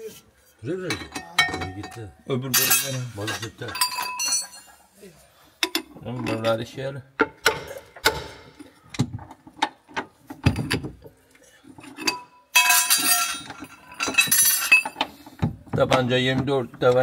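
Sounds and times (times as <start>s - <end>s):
metal tools clinking on steel: 0.8s - 4.8s, 5.6s - 6.6s, 11.8s - 15.1s.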